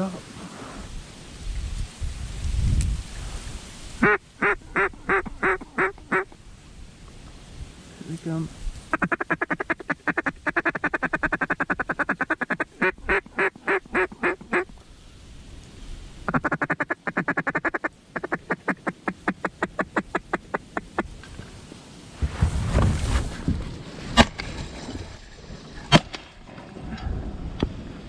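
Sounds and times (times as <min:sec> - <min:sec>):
duck call feed chatter: 0:04.0 - 0:06.3, 0:08.9 - 0:14.7
duck call quacks: 0:04.0 - 0:06.4, 0:08.9 - 0:14.7, 0:16.3 - 0:21.0.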